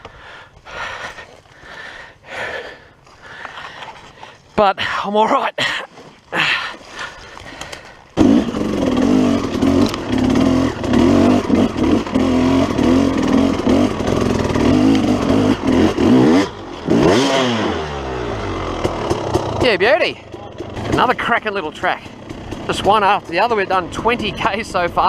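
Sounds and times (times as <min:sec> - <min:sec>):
dirt bike engine under load: 0:07.4 - 0:25.0.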